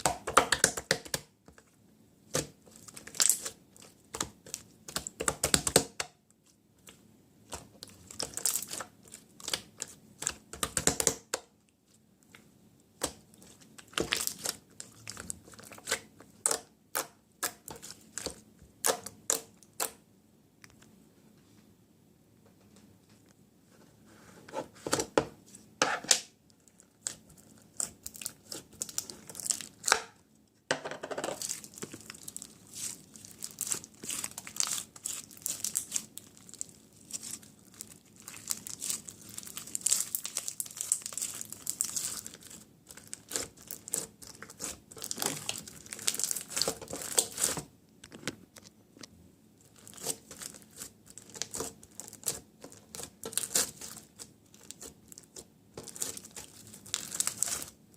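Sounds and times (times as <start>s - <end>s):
plastic packaging crinkling and tearing: 26.6s - 30.0s, 31.4s - 47.7s, 49.6s - 57.8s.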